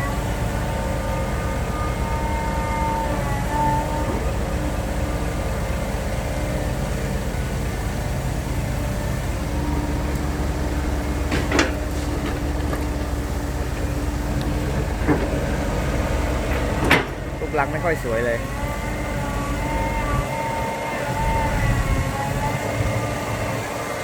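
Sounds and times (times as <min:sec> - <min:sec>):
dump truck diesel engine running: 0:00.0 - 0:24.0
short clunks: 0:08.9 - 0:18.8.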